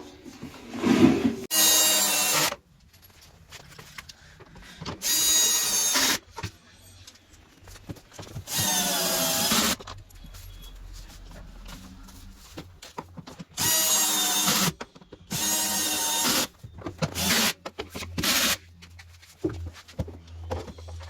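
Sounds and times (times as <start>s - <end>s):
power drill whining: 1.5s - 2.6s, 5.0s - 6.2s, 8.5s - 9.8s, 13.6s - 16.5s, 17.2s - 17.5s, 18.2s - 18.6s
metal clinks and handling noise: 2.7s - 4.2s.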